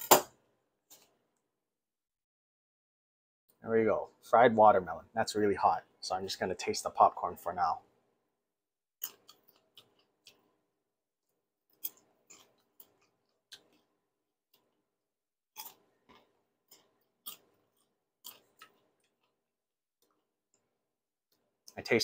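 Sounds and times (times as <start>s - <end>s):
person chewing crunchy popcorn: 9.0s - 10.5s, 11.7s - 14.0s, 15.5s - 19.4s.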